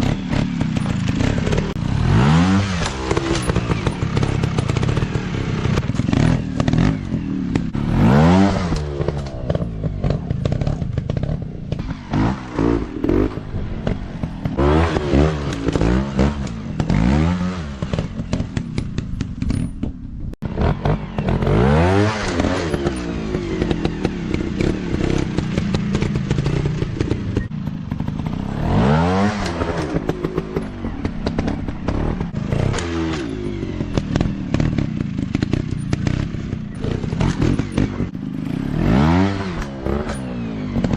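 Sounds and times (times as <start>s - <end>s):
dirt bike engine revving: 0.0s - 19.5s, 20.4s - 40.9s
clattering and scraping: 17.9s - 20.1s, 29.4s - 38.6s.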